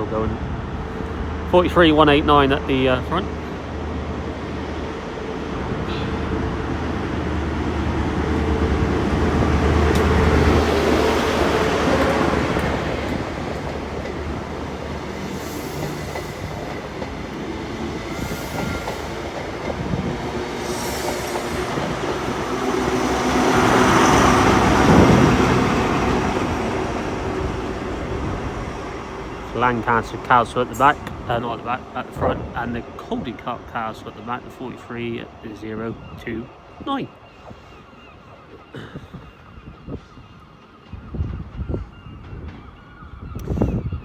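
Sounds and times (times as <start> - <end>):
diesel train engine: 0.0 - 43.6
wheels clicking over rail joints: 8.3 - 23.9.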